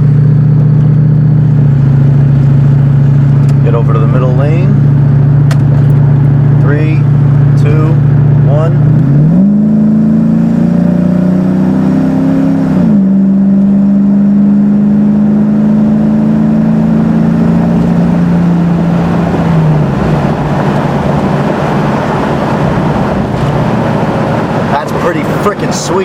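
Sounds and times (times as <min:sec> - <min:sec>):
car engine accelerating hard: 0:00.0 - 0:26.0
steady rushing noise: 0:17.8 - 0:26.0.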